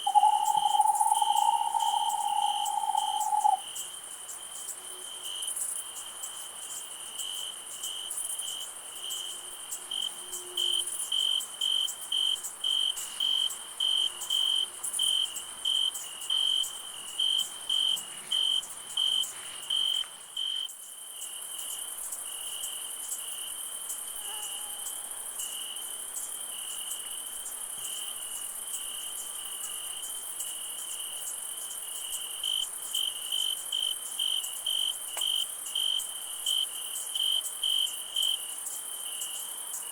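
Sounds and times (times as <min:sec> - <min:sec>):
high-pitched insect hiss: 0:00.0 - 0:03.7
crickets chirping: 0:00.0 - 0:39.9.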